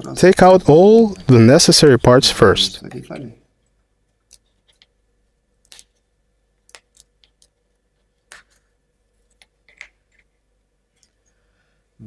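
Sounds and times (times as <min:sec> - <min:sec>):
plywood parts clicking and tapping: 0:09.3 - 0:10.3.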